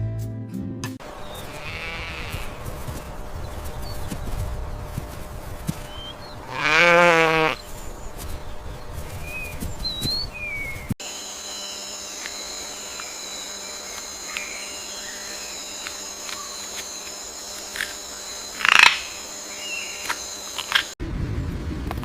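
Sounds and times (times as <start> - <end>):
birds chirping: 1.0 - 21.0
outdoor background noise: 1.0 - 22.0
high-pitched whine: 10.4 - 21.0.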